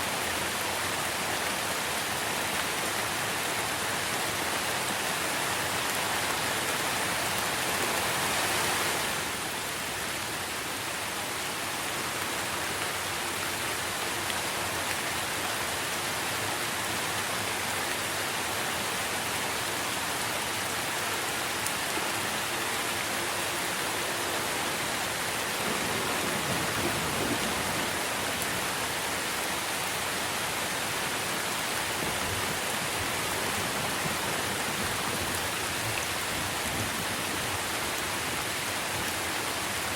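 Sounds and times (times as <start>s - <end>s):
rain falling on foliage: 0.0s - 39.9s.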